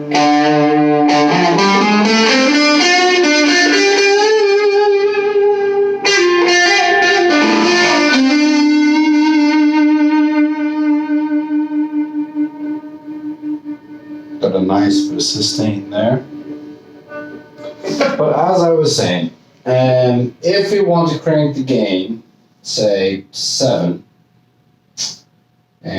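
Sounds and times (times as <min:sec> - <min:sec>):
electric guitar lead line: 0:00.0 - 0:18.6.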